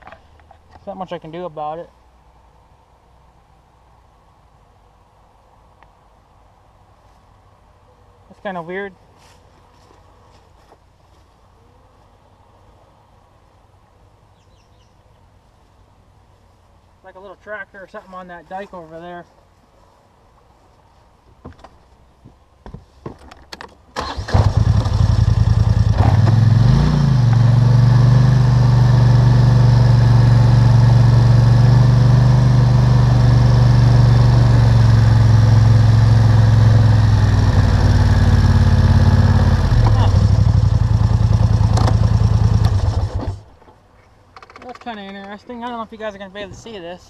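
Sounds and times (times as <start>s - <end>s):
atv engine starting and idling: 24.0s - 43.5s.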